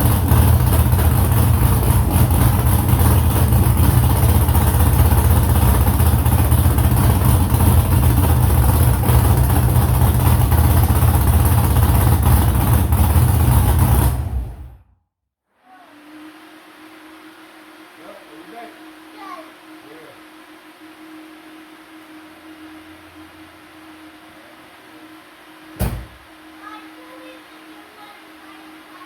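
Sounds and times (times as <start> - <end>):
engine running with deep exhaust rumble: 0.0 - 14.9.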